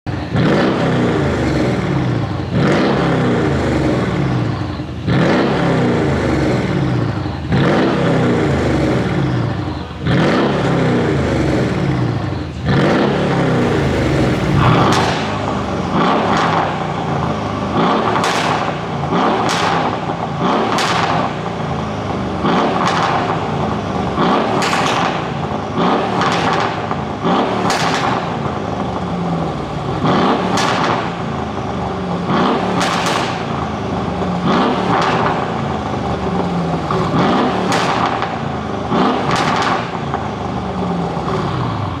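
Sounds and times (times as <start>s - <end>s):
car engine revving: 0.0s - 42.0s
exhaust pops and crackles: 8.5s - 42.0s.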